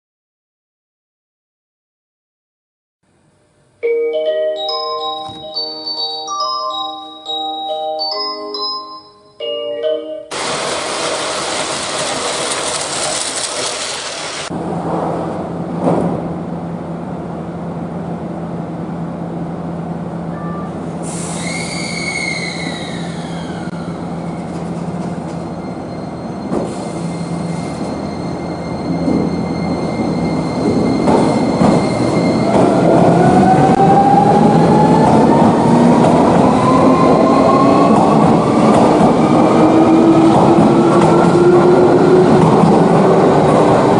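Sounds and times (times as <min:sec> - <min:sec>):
train traction motor whine: 0:10.3 - 0:14.8
train brake squeal: 0:20.4 - 0:32.7.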